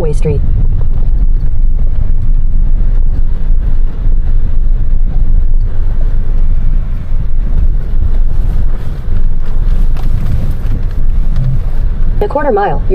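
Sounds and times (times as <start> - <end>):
road noise: 0.0 - 12.9
truck engine rumble: 0.0 - 12.9.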